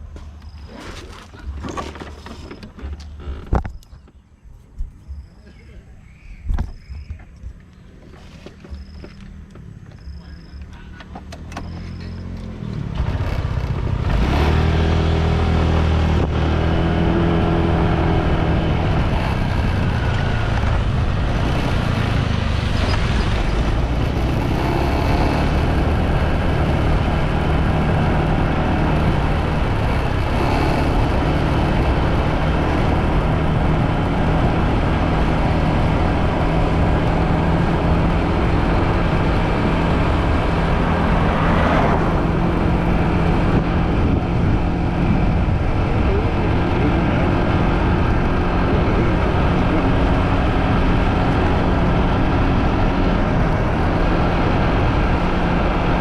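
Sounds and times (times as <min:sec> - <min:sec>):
motorbike engine accelerating: 0:08.5 - 0:56.0
rushing wind noise: 0:13.9 - 0:56.0.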